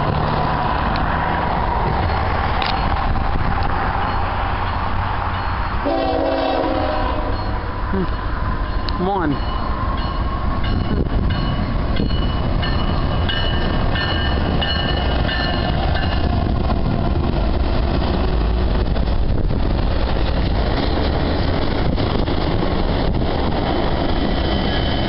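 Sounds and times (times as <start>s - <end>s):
train rumbling past on rails: 0.0s - 25.0s
high-pitched wheel ringing: 7.3s - 16.3s.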